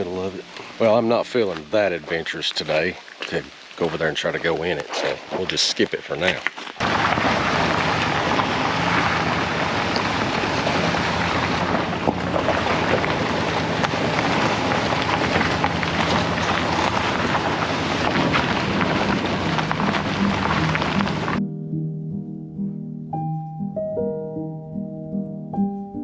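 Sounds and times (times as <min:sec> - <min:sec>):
truck engine hum: 0:00.0 - 0:02.9, 0:06.8 - 0:21.4
tyre and road noise: 0:00.0 - 0:21.4.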